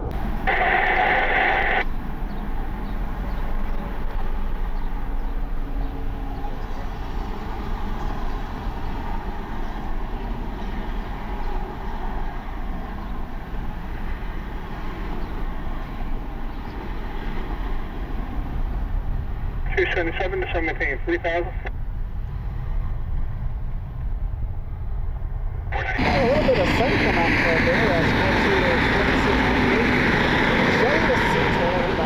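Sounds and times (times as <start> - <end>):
wind noise: 0.0 - 20.5
jet engines rumbling: 0.0 - 32.0
loud hiss: 0.1 - 4.4.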